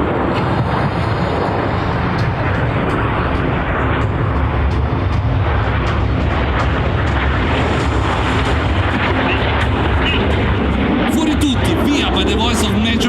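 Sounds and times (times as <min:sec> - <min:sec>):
jet noise: 0:00.0 - 0:13.0.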